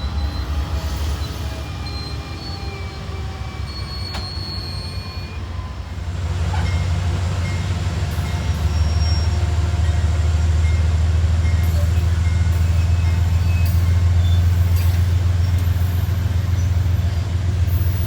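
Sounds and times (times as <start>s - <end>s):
high wheel squeals: 0.0s - 5.8s, 8.2s - 10.1s, 11.5s - 18.0s
diesel locomotive rumble: 0.0s - 18.0s.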